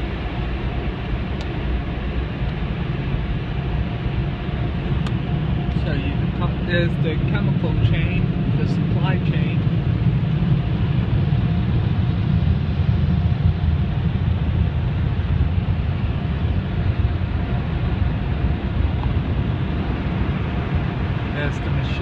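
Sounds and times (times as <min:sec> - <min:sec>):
car wash machinery rumble: 0:00.0 - 0:22.0
faint steady hum: 0:00.0 - 0:22.0.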